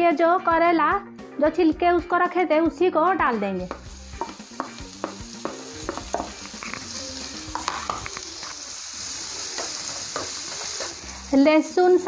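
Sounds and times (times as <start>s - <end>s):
peel sizzling in hot oil: 3.6s - 12.0s.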